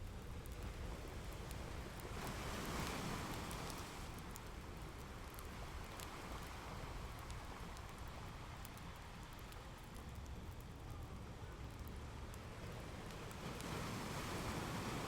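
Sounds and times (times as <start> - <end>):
fireplace crackling and popping: 0.0 - 14.4
ocean waves: 1.7 - 4.2, 12.6 - 15.0.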